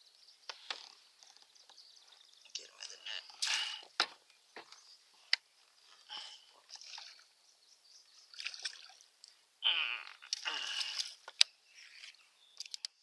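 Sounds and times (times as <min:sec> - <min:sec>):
water splashing and dripping: 0:06.6 - 0:07.3, 0:08.3 - 0:09.4, 0:10.2 - 0:11.4.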